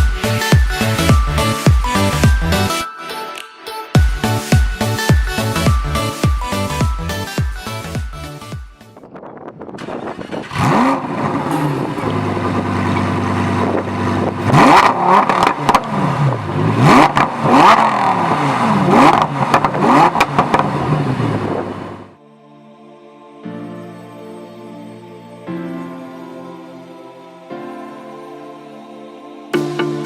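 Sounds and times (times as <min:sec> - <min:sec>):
car engine revving: 0:09.8 - 0:22.2.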